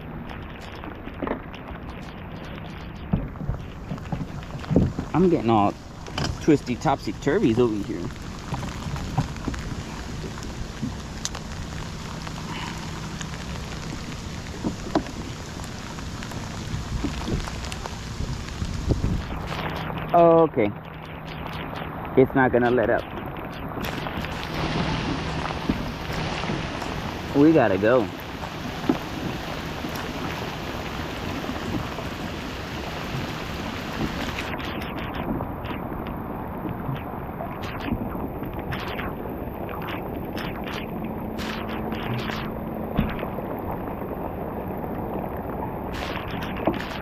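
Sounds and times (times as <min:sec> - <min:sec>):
sharp raindrop taps: 0:00.0 - 0:20.2, 0:20.8 - 0:47.0
rain falling on water: 0:00.0 - 0:47.0.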